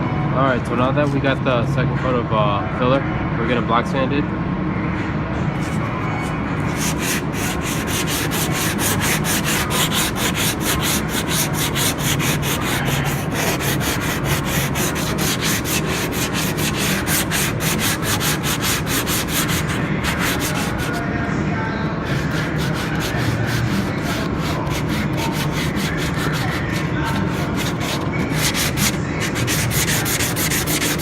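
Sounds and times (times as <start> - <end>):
sandpaper rubbing on filler: 5.6 - 21.1, 22.0 - 31.0.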